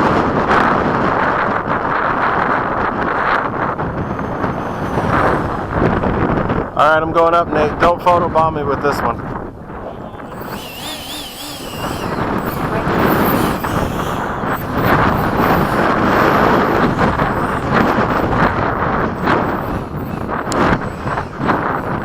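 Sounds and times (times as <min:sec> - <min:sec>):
rc jet rushing whoosh: 0:01.8 - 0:07.6, 0:10.1 - 0:22.0
warbling whistle: 0:10.0 - 0:22.0.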